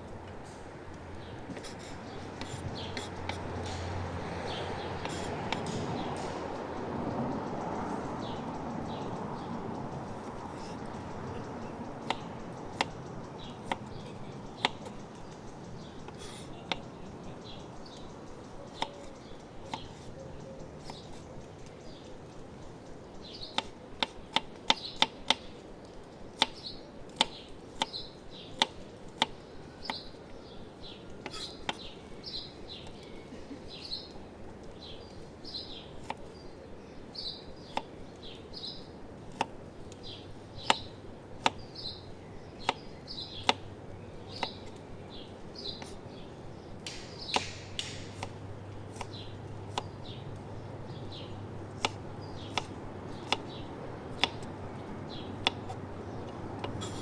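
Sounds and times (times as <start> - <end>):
small birds chirping: 0.0 - 57.0
knife chopping on wooden board: 1.5 - 6.4, 12.0 - 15.0, 16.0 - 16.9, 18.7 - 20.2, 20.8 - 21.3, 23.5 - 25.4, 26.4 - 30.2, 31.2 - 31.9, 36.0 - 36.3, 37.6 - 37.9, 39.3 - 39.5, 40.6 - 41.6, 42.6 - 42.8, 43.4 - 43.6, 44.3 - 44.8, 46.9 - 50.4, 51.6 - 57.0.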